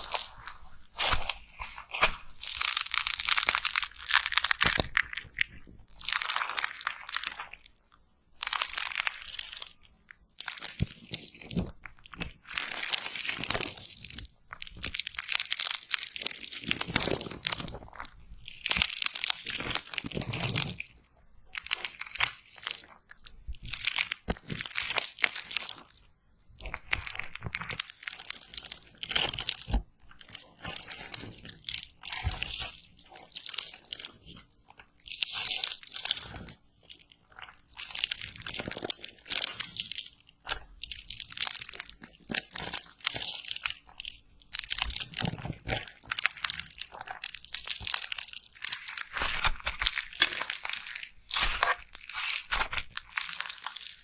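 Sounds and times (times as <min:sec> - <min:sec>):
slime crackling and clicking: 0:21.5 - 0:54.0.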